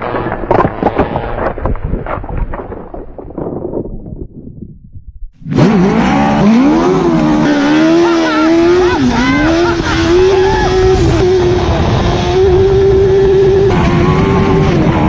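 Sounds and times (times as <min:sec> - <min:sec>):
dirt bike engine running hard: 0:05.4 - 0:15.0.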